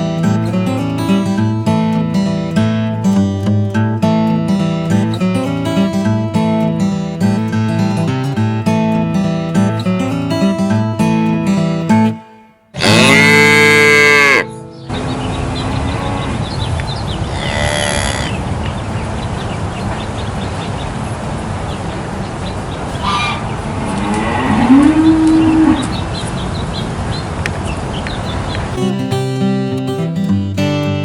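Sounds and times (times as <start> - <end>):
outdoor background noise: 0.0 - 31.0
cattle mooing: 12.8 - 14.5, 17.2 - 18.5, 23.0 - 26.0.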